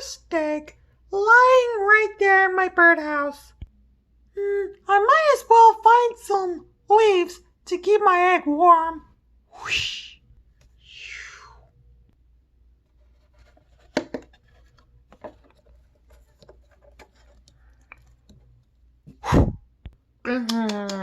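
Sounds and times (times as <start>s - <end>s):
toy props scratching and clicking: 13.2s - 18.8s.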